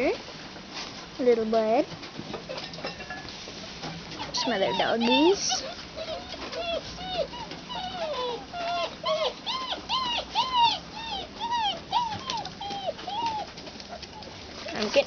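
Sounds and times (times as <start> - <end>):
puppies whining and yipping: 4.2 - 14.5.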